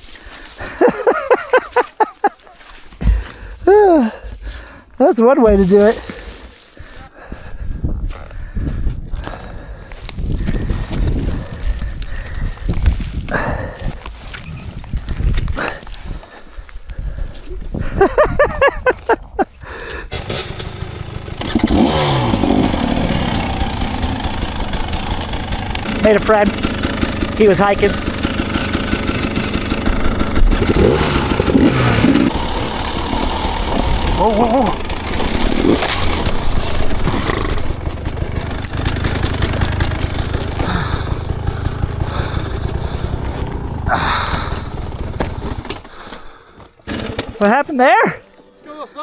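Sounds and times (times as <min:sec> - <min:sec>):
dirt bike engine revving: 0:20.1 - 0:46.1.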